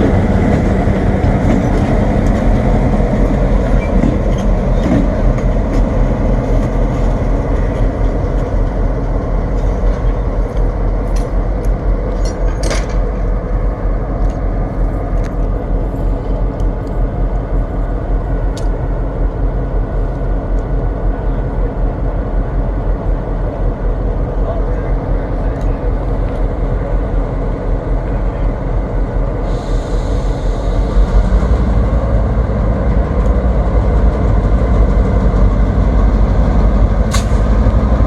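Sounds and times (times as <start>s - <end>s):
freight train rumble: 0.0s - 38.0s
sharp metallic clanks: 37.1s - 37.5s.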